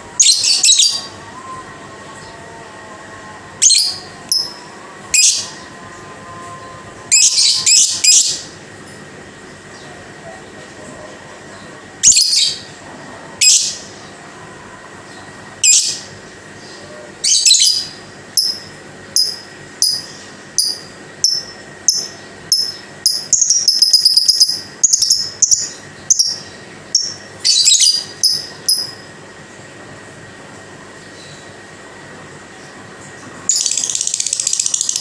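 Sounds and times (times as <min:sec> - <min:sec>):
lovebird chirping: 0:16.7 - 0:29.0.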